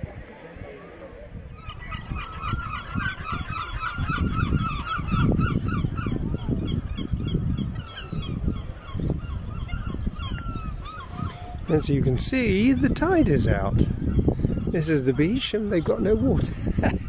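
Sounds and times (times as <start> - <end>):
birds honking: 1.6 - 12.9.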